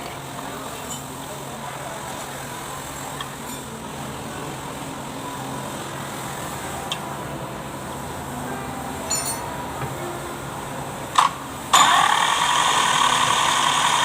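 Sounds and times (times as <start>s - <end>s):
diesel engine running: 3.8s - 14.0s.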